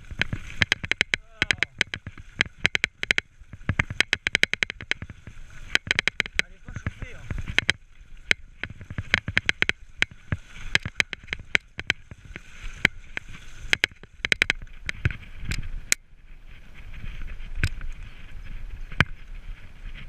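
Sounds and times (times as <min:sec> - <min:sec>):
bike rattling clacks and knocks: 0:00.0 - 0:15.6.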